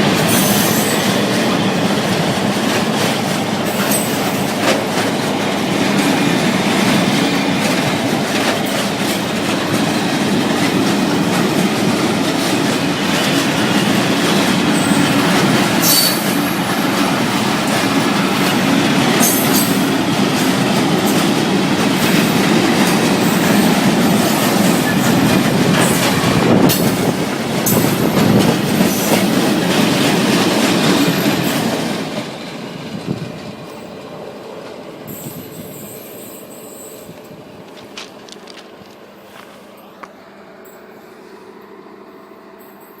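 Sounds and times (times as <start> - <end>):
wheels clattering over rail joints: 0.0 - 37.0
freight train wagons rumbling: 0.0 - 43.0
high wheel squeals: 14.7 - 16.6, 35.1 - 37.3.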